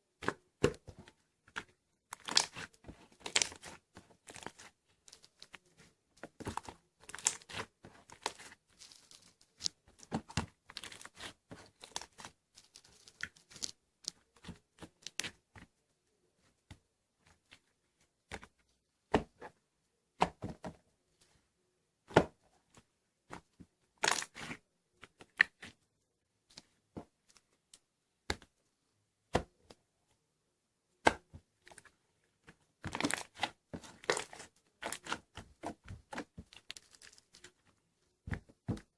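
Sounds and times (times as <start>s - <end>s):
slime crackling and tearing: 2.1s - 5.5s, 6.4s - 13.7s, 32.9s - 35.3s.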